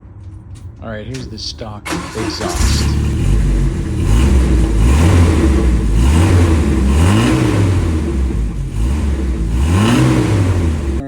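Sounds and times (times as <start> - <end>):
car engine throttle blips: 0.8 - 11.0.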